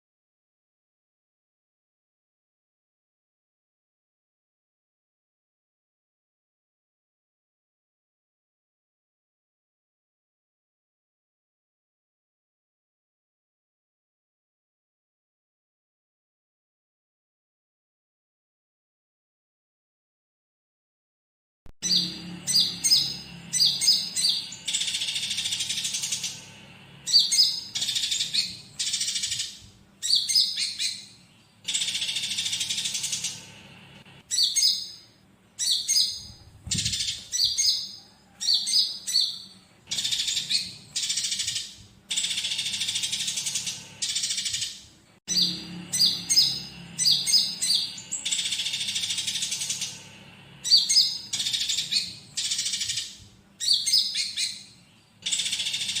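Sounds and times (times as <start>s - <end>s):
songbird singing: 21.8s - 56.0s.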